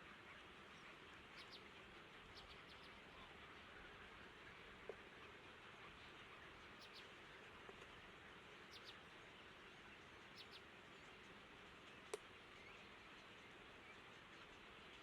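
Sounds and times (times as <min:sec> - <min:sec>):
faint steady hiss: 0:00.0 - 0:15.0
small click: 0:12.1 - 0:12.3.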